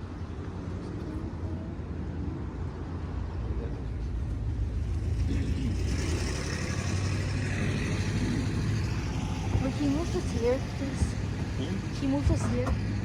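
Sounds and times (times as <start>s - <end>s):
road traffic rumbling: 0.0s - 13.0s
vehicle passing: 0.0s - 13.0s.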